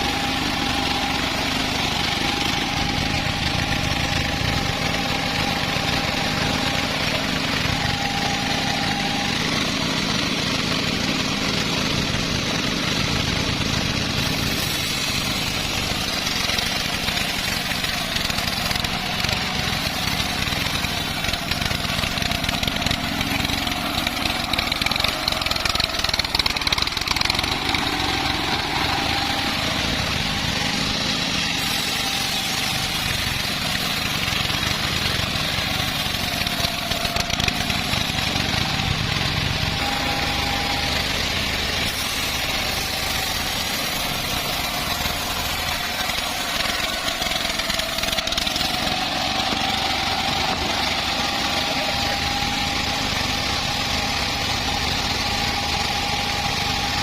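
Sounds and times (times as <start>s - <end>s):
faint high whine: 0.0s - 10.1s, 14.1s - 57.0s
bandsaw sawmill sawing log: 0.0s - 57.0s.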